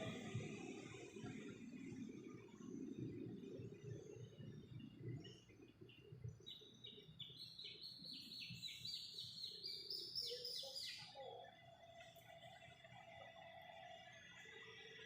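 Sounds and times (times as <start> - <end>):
faint low rumble: 0.0 - 7.9.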